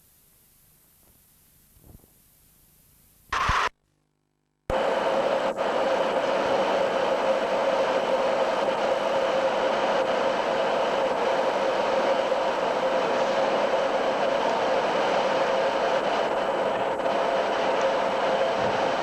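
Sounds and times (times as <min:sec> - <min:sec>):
train hum and rumble: 0:04.7 - 0:19.0.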